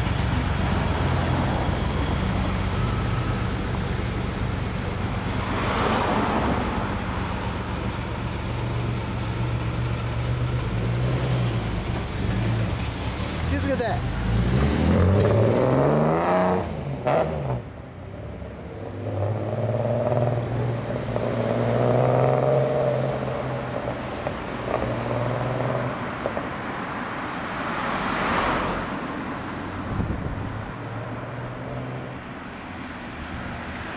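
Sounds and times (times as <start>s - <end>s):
car engine pulling away: 0.0s - 17.7s, 18.8s - 26.4s
traffic rushing: 0.0s - 33.9s.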